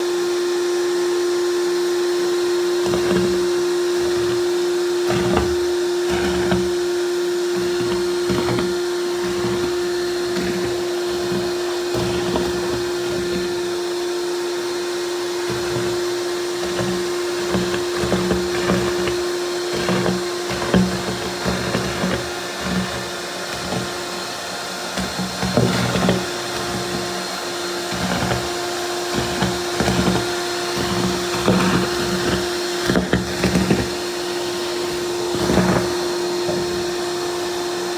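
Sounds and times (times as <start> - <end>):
vacuum cleaner motor hum: 0.0 - 37.9
knocks and rattles on floor: 25.0 - 37.5.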